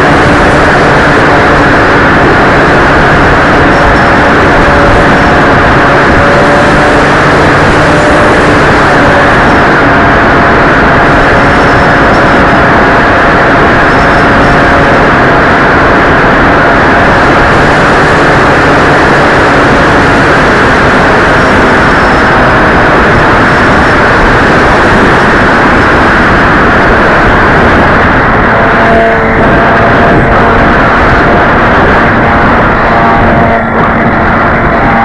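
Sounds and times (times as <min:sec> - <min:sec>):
wind and airflow noise: 0:00.0 - 0:35.0.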